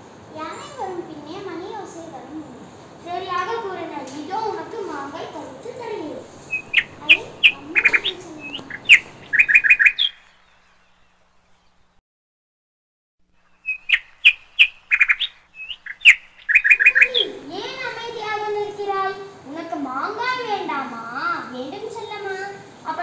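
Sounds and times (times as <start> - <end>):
bright bird chirps: 6.2 - 11.9, 13.4 - 17.5.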